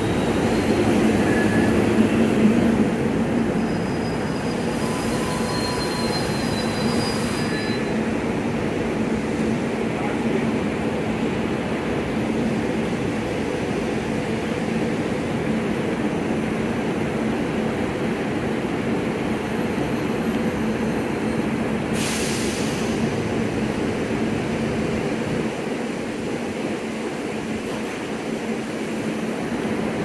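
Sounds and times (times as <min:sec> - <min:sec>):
air hiss burst: 0:21.9 - 0:23.0.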